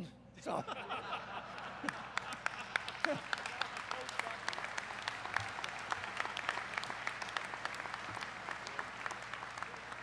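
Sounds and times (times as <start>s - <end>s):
audience clapping: 1.4s - 10.0s.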